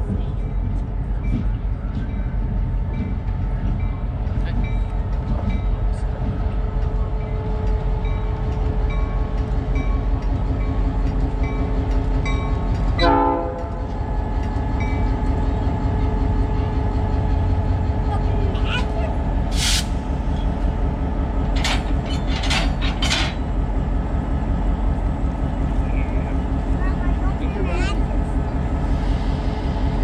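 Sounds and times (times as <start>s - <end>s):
diesel locomotive rumbling: 0.0s - 30.0s
locomotive horn blast: 13.0s - 13.9s.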